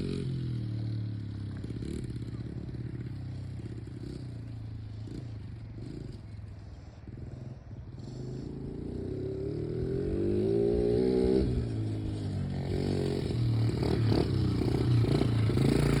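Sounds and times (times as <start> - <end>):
dirt bike engine revving: 8.1 - 16.0.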